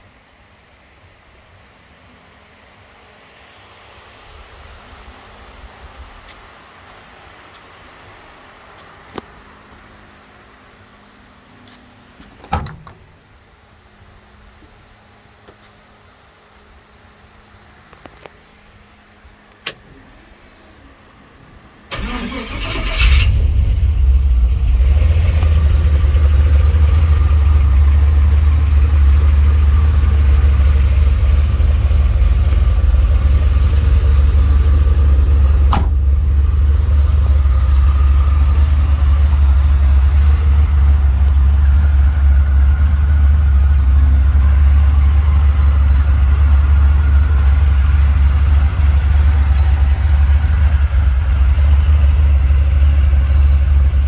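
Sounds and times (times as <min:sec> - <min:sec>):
sharp click: 0:19.5 - 0:19.9
engine starting and idling: 0:19.8 - 0:54.0.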